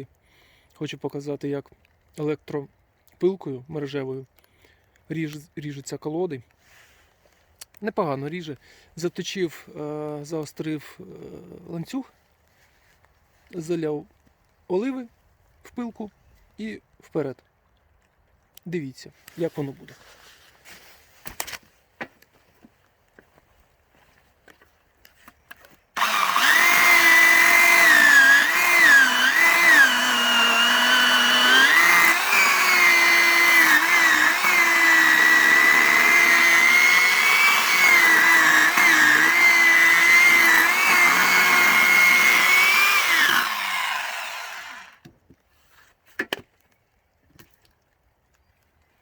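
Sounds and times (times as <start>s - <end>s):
electric chainsaw cutting log: 26.0s - 45.0s.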